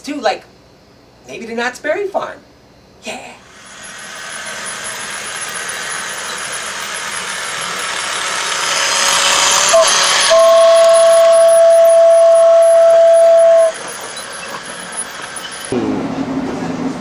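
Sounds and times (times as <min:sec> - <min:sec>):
train running with rushing noise: 0:03.5 - 0:17.0
train whistle blast: 0:09.2 - 0:14.0.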